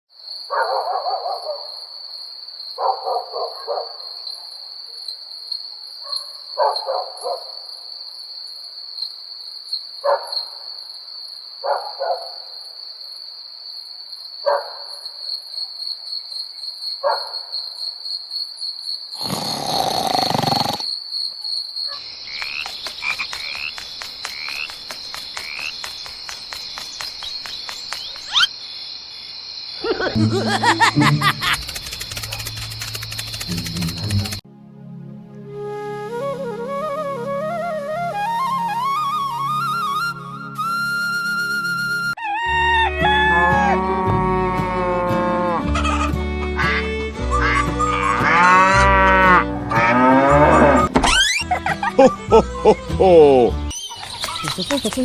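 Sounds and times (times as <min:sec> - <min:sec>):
high insect trill: 0:12.5 - 0:34.4
frogs croaking: 0:18.9 - 0:34.4
rapid clicking: 0:31.3 - 0:34.4.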